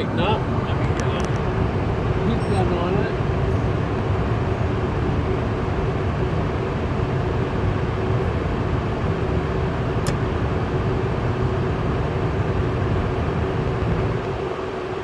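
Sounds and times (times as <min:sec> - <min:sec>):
furnace fan humming: 0:00.0 - 0:15.0
small click: 0:10.0 - 0:10.2.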